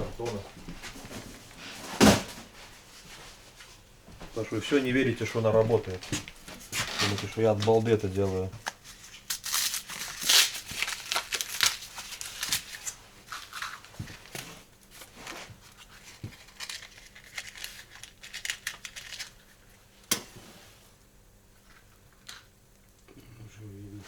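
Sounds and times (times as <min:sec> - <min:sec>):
paper tearing and crumpling: 0:06.2 - 0:19.6.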